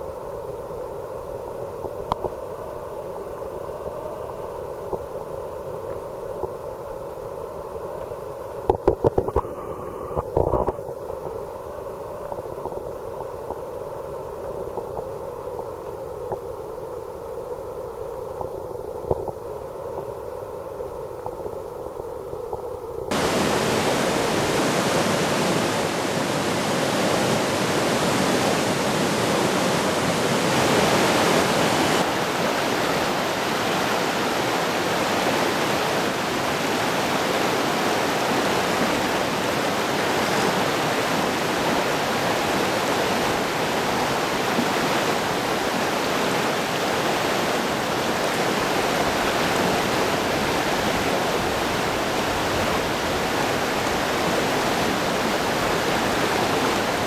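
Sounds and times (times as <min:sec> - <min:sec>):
stream rushing over rocks: 0:23.1 - 0:57.0.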